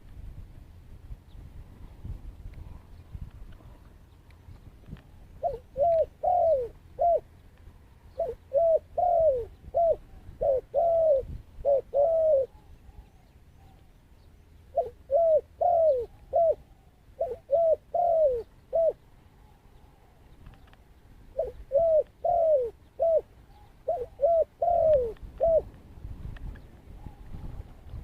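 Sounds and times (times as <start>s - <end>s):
dove cooing: 5.0s - 13.9s, 14.7s - 20.3s, 21.3s - 25.7s, 26.9s - 27.9s.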